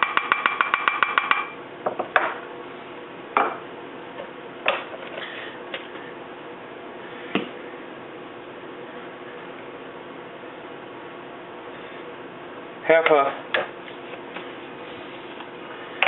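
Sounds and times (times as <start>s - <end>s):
spoon tapping a bowl: 0.0s - 1.6s.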